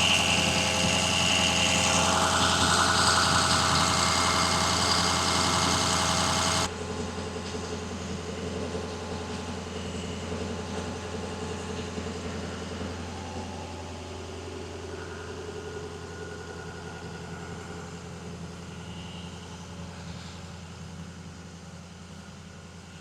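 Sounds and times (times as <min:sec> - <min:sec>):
diesel engine idling: 0:00.0 - 0:07.0.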